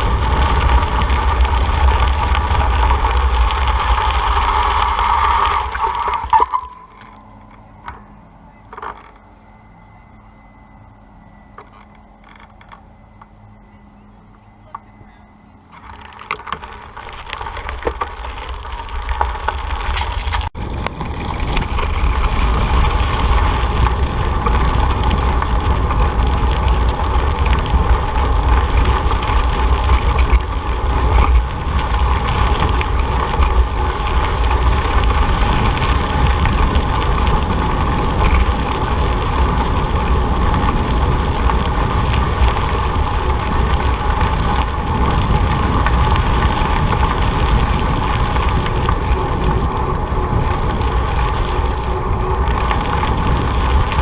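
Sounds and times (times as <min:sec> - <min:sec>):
road noise: 0:00.0 - 0:54.0
wind buffeting microphone: 0:16.8 - 0:54.0.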